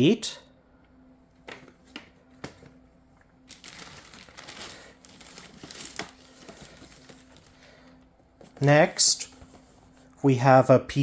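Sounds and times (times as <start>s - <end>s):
packaging crinkling: 3.4s - 9.4s.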